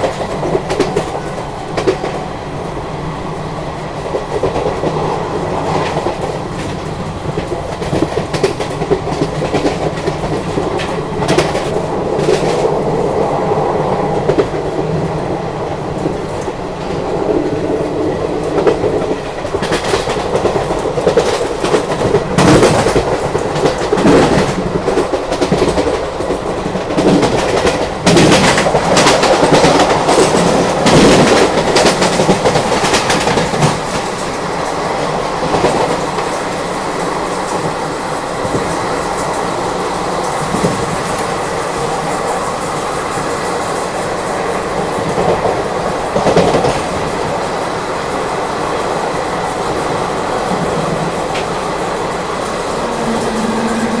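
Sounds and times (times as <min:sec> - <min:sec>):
freight train passing: 0:00.0 - 0:54.0
rush of rail noise: 0:00.0 - 0:54.0
train wheels clattering over rail joints: 0:04.1 - 0:12.8, 0:18.5 - 0:37.8.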